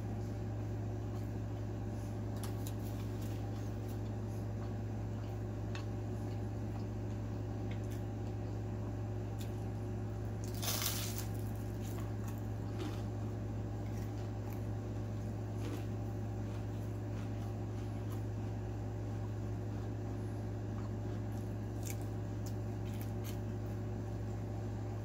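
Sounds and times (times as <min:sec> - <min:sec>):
chewing fried food: 0:00.0 - 0:24.9
steady low hum: 0:00.0 - 0:25.0
loud crunch: 0:10.4 - 0:18.4.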